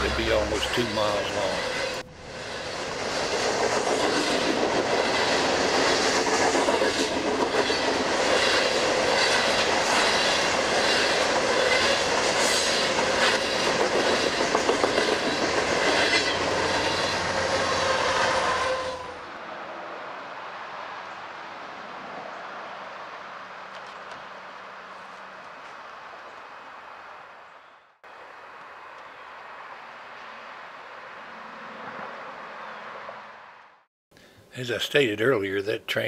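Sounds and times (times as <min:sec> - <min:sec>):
freight cars rumbling past: 0:00.0 - 0:24.9
wheels clicking over rail joints: 0:03.2 - 0:17.5
thin wheel squeal: 0:16.1 - 0:19.2.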